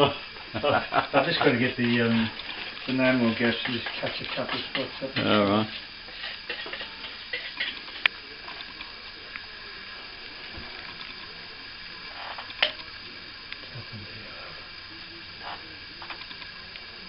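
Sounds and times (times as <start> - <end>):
plaster scraping and dabbing: 1.4 - 8.0.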